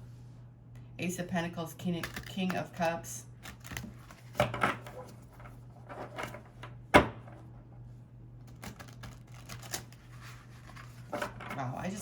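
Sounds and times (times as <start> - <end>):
cards clicking and rustling: 8.4 - 11.4.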